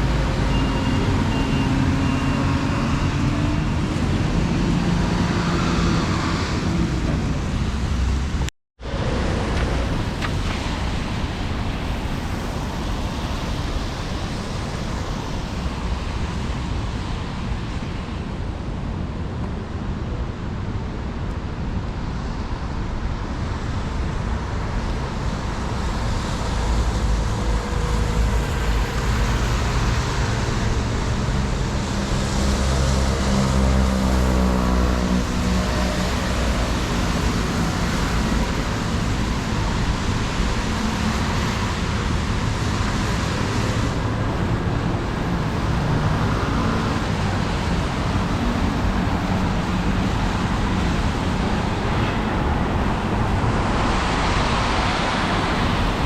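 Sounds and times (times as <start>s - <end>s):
passing vehicle noise: 24.4s - 56.0s.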